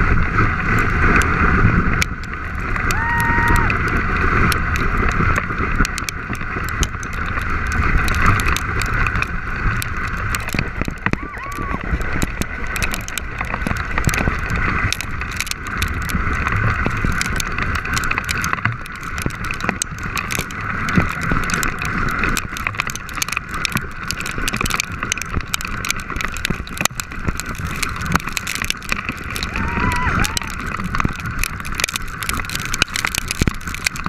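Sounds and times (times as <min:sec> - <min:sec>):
board sliding on loose gravel: 0:00.0 - 0:34.0
stones clicking and clattering: 0:00.6 - 0:34.0.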